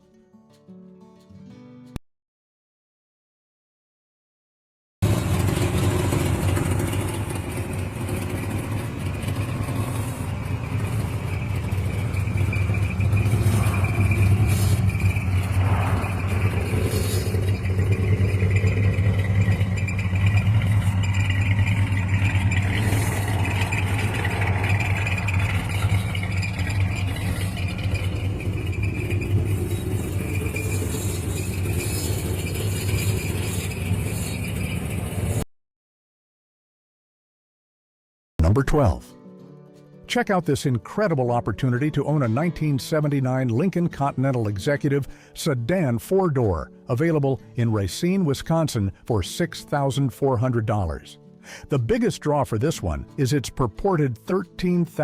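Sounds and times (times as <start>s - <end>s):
car engine running: 5.0s - 35.4s.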